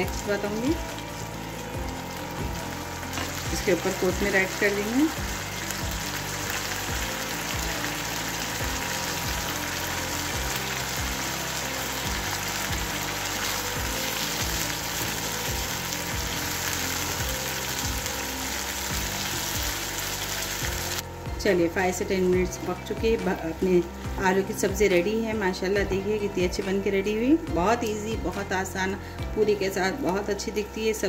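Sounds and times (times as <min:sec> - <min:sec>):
potatoes sizzling in a frying pan: 0:00.0 - 0:21.1
background music: 0:00.0 - 0:31.0.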